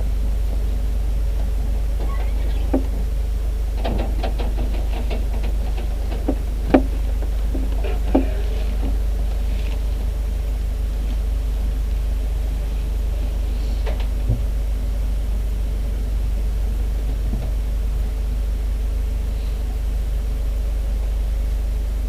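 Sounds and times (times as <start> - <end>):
aircraft cockpit drone: 0.0 - 22.0
sharp knocks: 3.8 - 9.0
clicks and rattles: 3.8 - 9.8.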